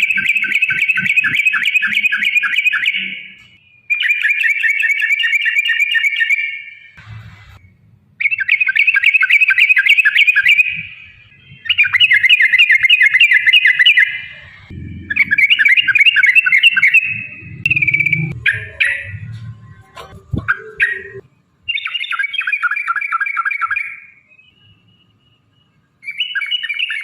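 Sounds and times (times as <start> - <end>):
bird singing bubbly chattering: 0.0 - 3.4, 8.2 - 19.2.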